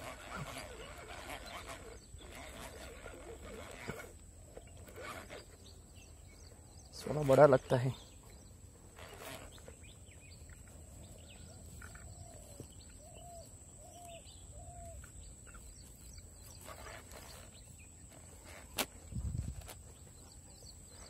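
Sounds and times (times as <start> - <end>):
faint riverside ambience: 0.0 - 21.0
soft rustle: 7.1 - 21.0.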